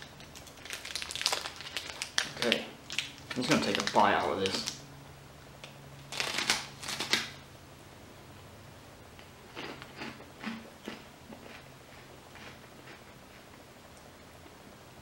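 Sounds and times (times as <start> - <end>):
crunchy snack being chewed: 9.5 - 13.5.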